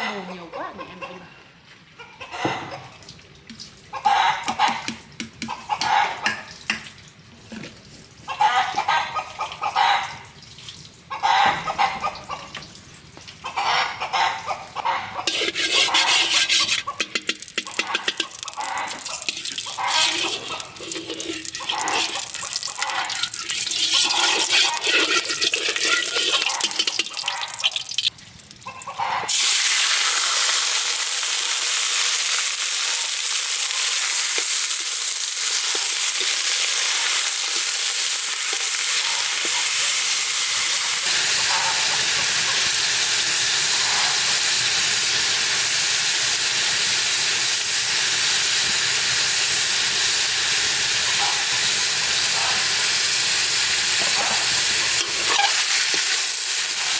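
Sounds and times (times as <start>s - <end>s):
food sizzling in hot oil: 15.2s - 28.7s, 29.3s - 56.9s
water splashing: 15.3s - 28.6s.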